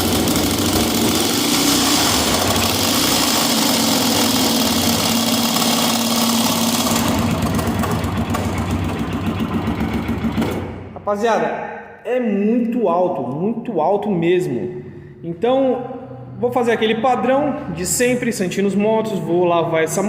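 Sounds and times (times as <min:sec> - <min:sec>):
engine running with loud clatter: 0:00.0 - 0:10.9.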